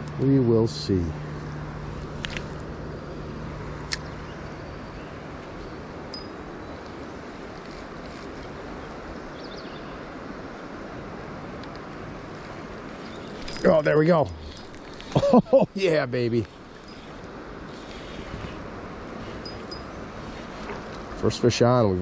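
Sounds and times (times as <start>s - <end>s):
river water rushing: 10.1s - 21.6s.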